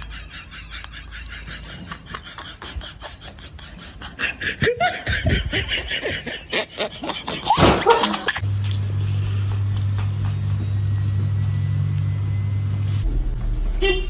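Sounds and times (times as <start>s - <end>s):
person laughing: 0.0s - 8.4s
steady low hum: 8.2s - 14.0s.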